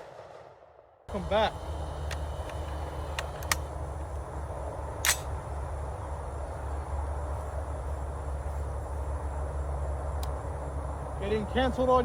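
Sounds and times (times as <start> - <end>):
sharp clicks: 2.0 - 3.8, 5.0 - 5.4.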